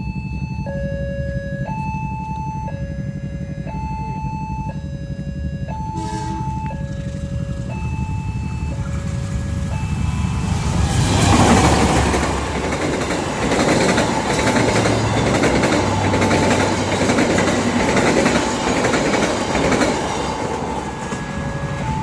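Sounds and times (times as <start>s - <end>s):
low steady rumble: 0.0s - 13.5s
level crossing alarm two tones: 0.0s - 18.6s, 19.8s - 22.0s
horn blast: 5.7s - 12.6s.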